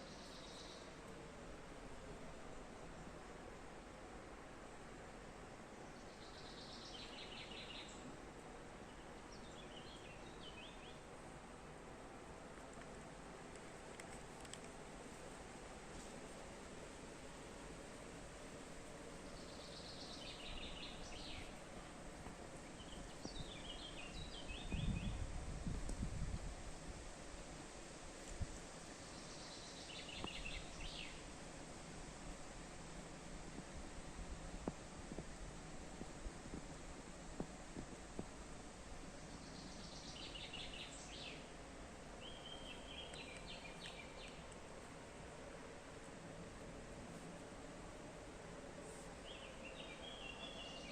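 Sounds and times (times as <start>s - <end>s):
songbird chirping: 0.0s - 1.0s, 5.6s - 8.2s, 8.8s - 11.1s, 18.7s - 25.2s, 28.9s - 31.3s, 39.1s - 44.7s, 48.0s - 50.9s
steady background hiss: 0.0s - 50.9s.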